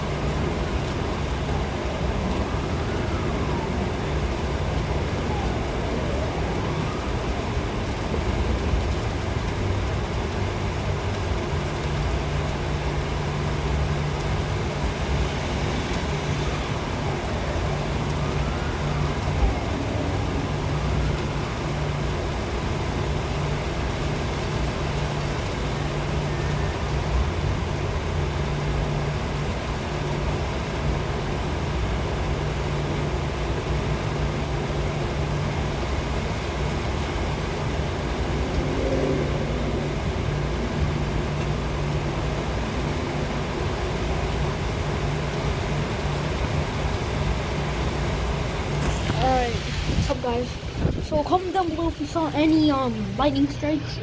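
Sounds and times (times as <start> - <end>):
wind gusting on microphone: 0.0 - 11.5, 13.1 - 32.7, 34.8 - 54.0
low rumble: 0.0 - 31.2, 35.5 - 46.2
rain hissing: 0.0 - 54.0.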